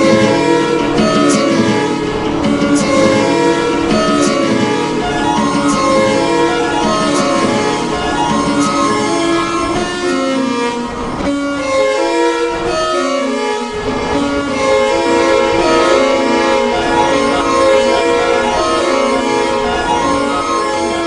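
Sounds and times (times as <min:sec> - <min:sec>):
pulsing bass: 0:00.0 - 0:09.8
electronic music: 0:00.0 - 0:21.0
held string-like notes: 0:00.0 - 0:21.0.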